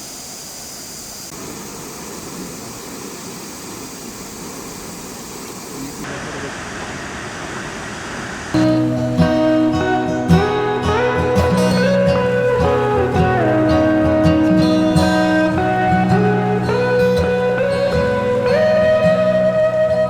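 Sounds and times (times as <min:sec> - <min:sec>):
waterfall rushing: 0:01.4 - 0:20.0
acoustic guitar music: 0:08.6 - 0:20.0.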